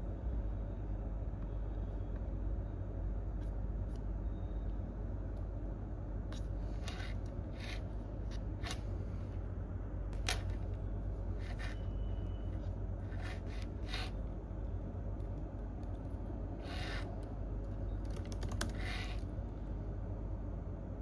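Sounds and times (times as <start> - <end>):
low office room hum: 0.0 - 21.0
computer keys and mouse clicks: 17.1 - 19.2.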